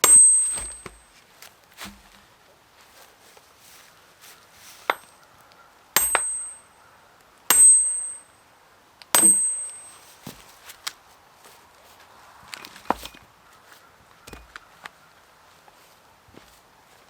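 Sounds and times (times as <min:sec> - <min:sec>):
axe splitting firewood: 0:00.0 - 0:02.3, 0:04.8 - 0:05.1, 0:06.0 - 0:06.6, 0:09.2 - 0:10.4, 0:12.6 - 0:13.2, 0:14.3 - 0:14.6.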